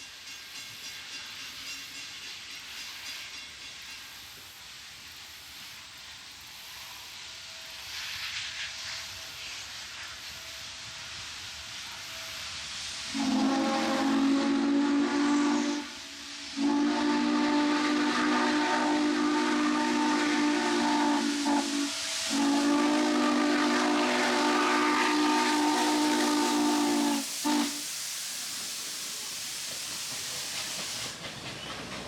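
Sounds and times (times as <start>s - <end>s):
steam hissing: 0.0s - 32.0s
steam locomotive whistle: 13.1s - 27.9s.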